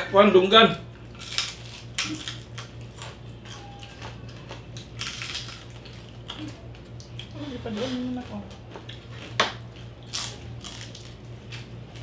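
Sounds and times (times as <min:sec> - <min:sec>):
crunching crispy pork skin: 0:01.0 - 0:12.0.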